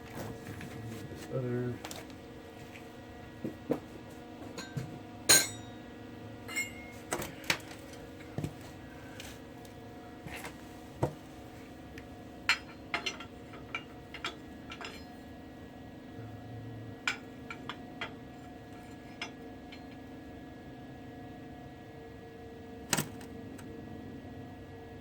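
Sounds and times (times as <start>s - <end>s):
low steady hum: 0.0s - 25.0s
metallic clinks of tools: 6.5s - 7.0s.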